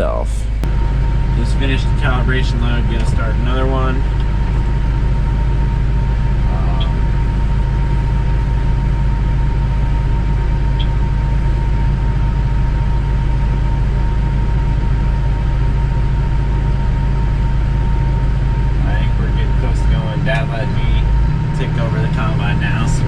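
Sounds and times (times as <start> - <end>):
combine harvester low drone: 0.0 - 23.0
thin steady whine: 0.0 - 23.0.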